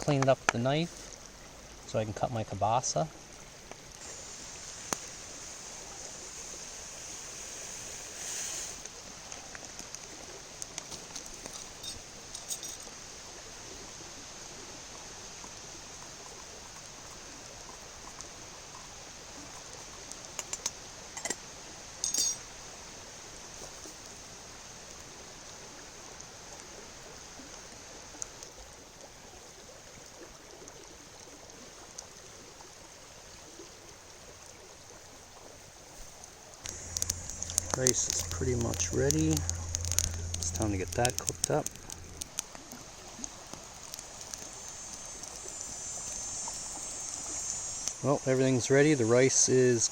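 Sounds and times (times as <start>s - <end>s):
river rushing: 36.6s - 49.9s
sharp clicks and knocks: 36.7s - 42.5s.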